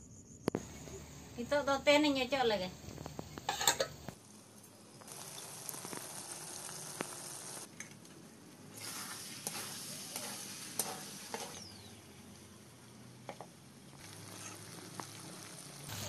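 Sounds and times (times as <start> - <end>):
chicken sizzling in hot oil: 2.9 - 7.7, 8.7 - 12.0, 13.9 - 16.0
metal spatula scraping pan: 3.5 - 4.0, 8.8 - 11.7, 14.3 - 14.6.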